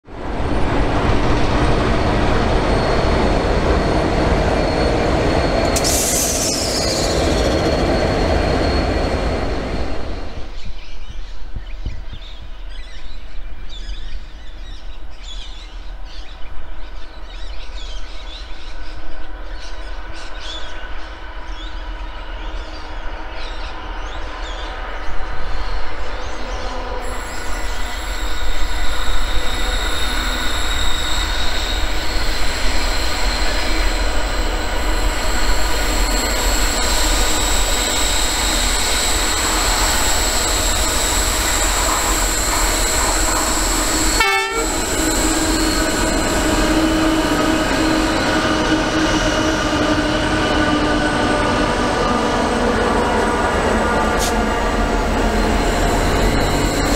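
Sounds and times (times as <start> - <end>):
diesel locomotives rumbling: 0.0 - 10.8, 17.4 - 56.9
high-pitched wheel squeal: 1.9 - 10.6, 26.6 - 56.9.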